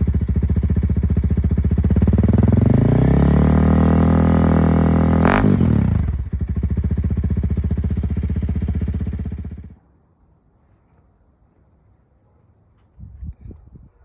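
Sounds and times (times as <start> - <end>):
motorcycle engine revving and idling: 0.0 - 9.8.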